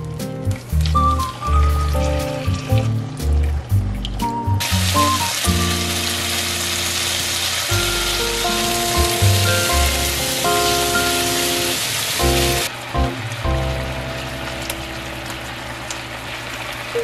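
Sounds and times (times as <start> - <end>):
background music: 0.0 - 15.3
chicken sizzling in a frying pan: 4.6 - 17.0.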